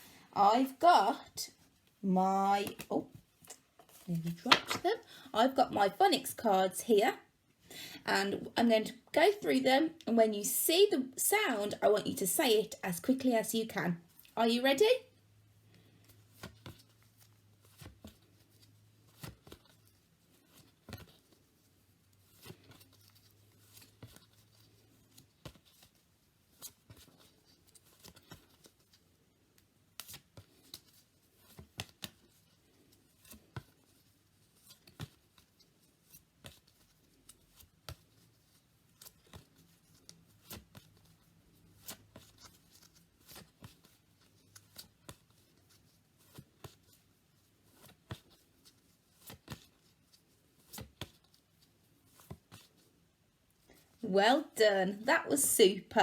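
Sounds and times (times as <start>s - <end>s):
cards flicking and rustling: 2.6s - 4.9s, 15.7s - 53.0s.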